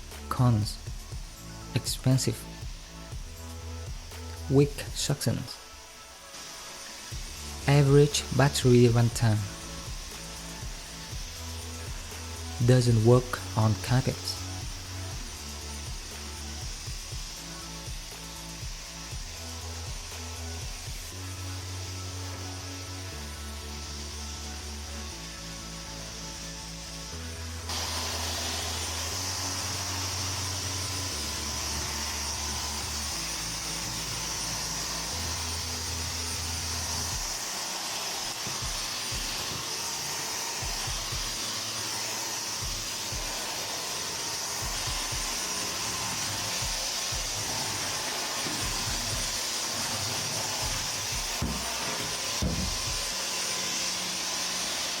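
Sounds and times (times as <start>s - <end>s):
cordless vacuum running: 0.0s - 55.0s.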